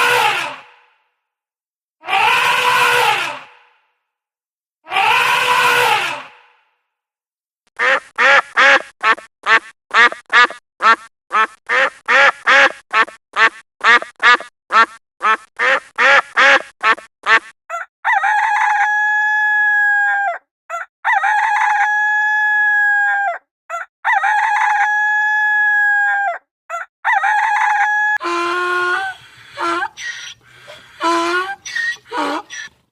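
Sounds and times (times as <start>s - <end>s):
farm bird short quick calls: 29.0s - 32.8s.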